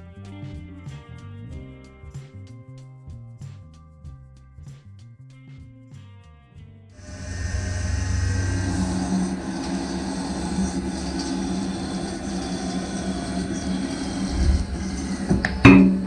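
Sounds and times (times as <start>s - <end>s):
coolant spray hissing: 7.0s - 15.7s
lathe spindle humming: 7.0s - 16.0s.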